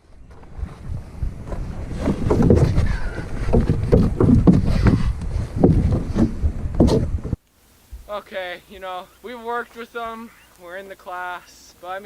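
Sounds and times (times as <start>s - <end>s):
wind buffeting microphone: 0.0s - 7.4s
microphone handling knocks: 0.3s - 8.1s.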